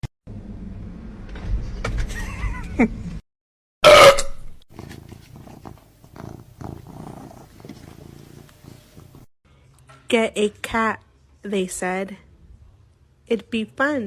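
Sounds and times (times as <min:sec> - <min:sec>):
low animal rumble: 0:04.8 - 0:09.3.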